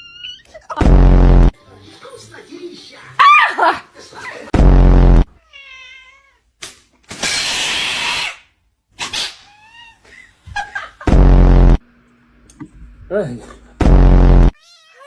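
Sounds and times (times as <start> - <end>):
loud low buzzing: 0.8 - 1.5, 4.6 - 5.3, 11.1 - 12.0, 13.8 - 14.6
cat meowing: 5.4 - 6.5, 9.0 - 10.0, 14.6 - 15.0.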